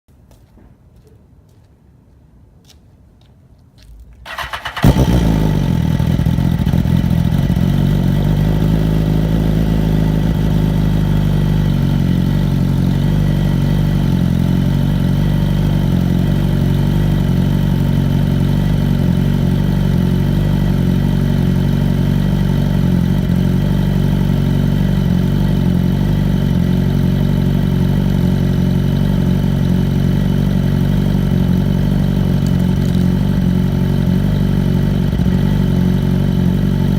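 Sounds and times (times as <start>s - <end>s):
motorcycle engine cranking: 4.3s - 7.4s
motorcycle engine idling: 4.3s - 36.9s.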